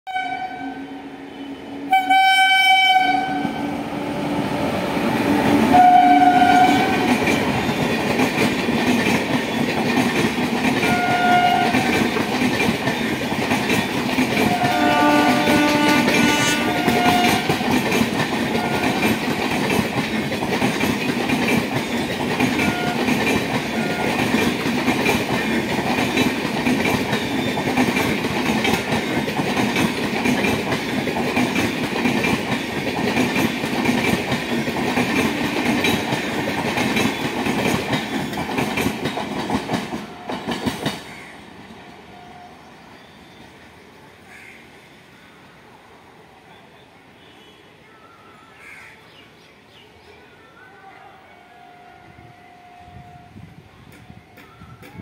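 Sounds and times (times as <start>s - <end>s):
locomotive horn blasts: 0.1s - 3.8s, 5.6s - 7.1s, 10.8s - 11.9s, 14.4s - 17.6s, 18.5s - 19.1s, 22.6s - 24.2s
train wheels rumbling on rails: 2.8s - 42.4s, 52.2s - 55.0s.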